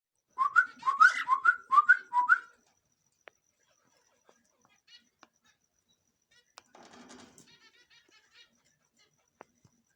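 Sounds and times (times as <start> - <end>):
cockatiel whistling: 0.4 - 2.5.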